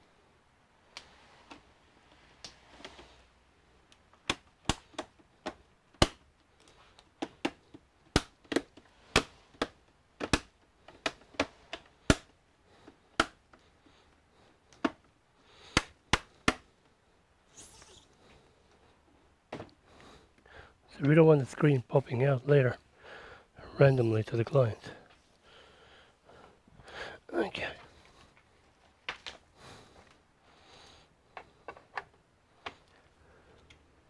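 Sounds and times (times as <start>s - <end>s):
plastic clips snapping into frame: 3.9s - 5.2s, 6.0s - 6.2s, 7.2s - 12.3s, 13.2s - 13.4s, 15.7s - 16.7s.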